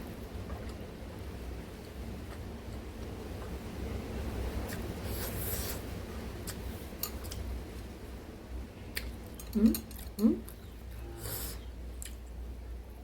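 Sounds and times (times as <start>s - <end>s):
wet mouth eating sounds: 9.0s - 10.7s.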